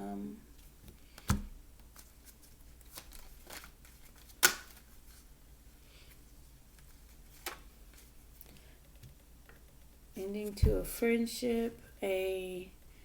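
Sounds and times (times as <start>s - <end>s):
cards rustling: 1.1s - 5.2s.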